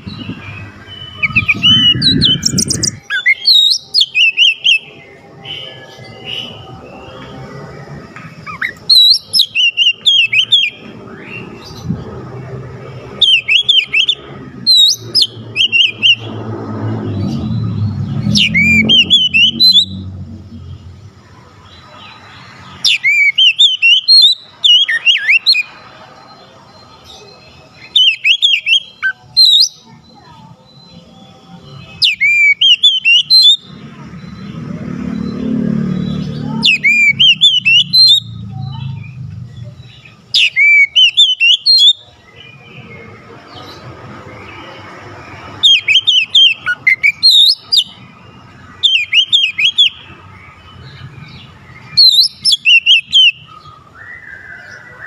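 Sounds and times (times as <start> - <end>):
bird whistles and chirps: 0.0 - 4.9, 8.4 - 11.8, 13.2 - 16.4, 17.1 - 20.1, 22.8 - 25.7, 27.8 - 30.0, 31.9 - 33.7, 36.3 - 38.8, 39.9 - 42.4, 45.6 - 48.0, 48.8 - 50.1, 51.3 - 55.0.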